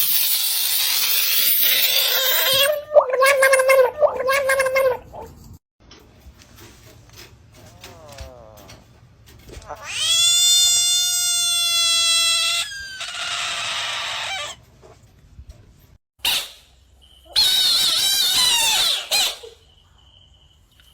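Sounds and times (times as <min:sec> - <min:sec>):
frog screaming: 0:01.6 - 0:05.3, 0:09.6 - 0:14.6, 0:17.3 - 0:19.5.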